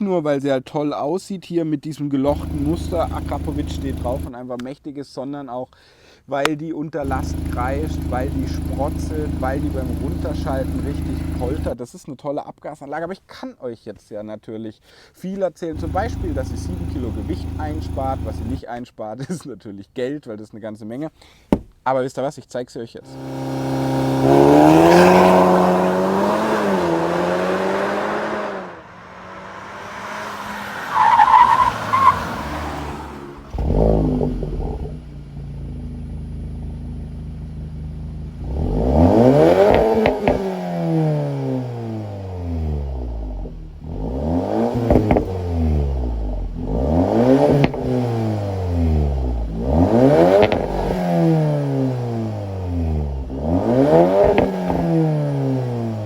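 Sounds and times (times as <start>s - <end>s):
car engine revving: 2.3s - 4.3s, 7.0s - 11.8s, 15.8s - 18.6s, 23.1s - 56.0s.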